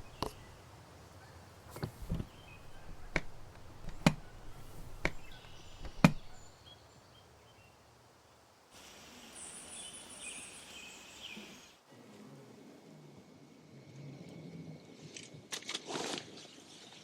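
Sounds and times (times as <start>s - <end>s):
faint bird chirps: 0.0s - 7.8s
steady outdoor hiss: 0.0s - 15.1s
sharp knocks on wood: 1.7s - 6.5s.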